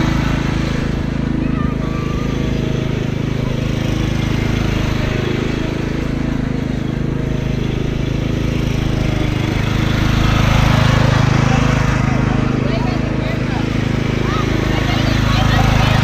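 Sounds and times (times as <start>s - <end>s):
riding lawn mower engine: 0.0s - 16.0s.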